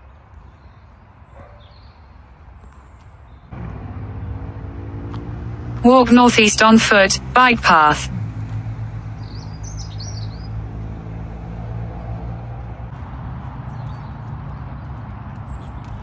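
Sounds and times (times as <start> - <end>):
high bird chirps: 9.1 - 10.6.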